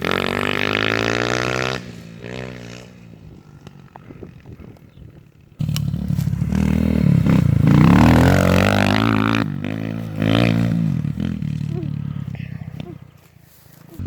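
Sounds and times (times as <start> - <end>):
small motorbike engine revving: 0.0 - 13.1.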